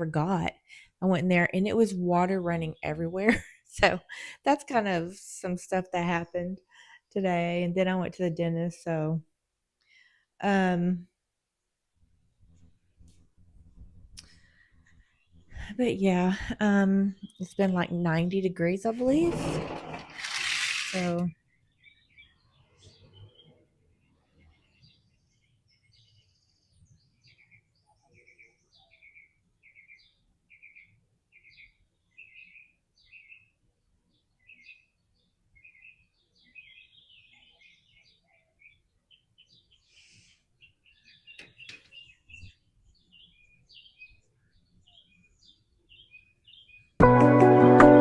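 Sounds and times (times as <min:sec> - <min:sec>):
bird chirping: 0:18.9 - 0:47.0.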